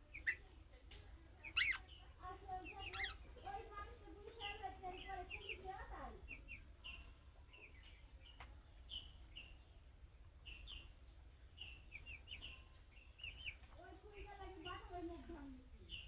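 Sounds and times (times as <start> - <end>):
budgerigar chirping: 0.1 - 0.4, 1.5 - 1.8, 2.7 - 3.2.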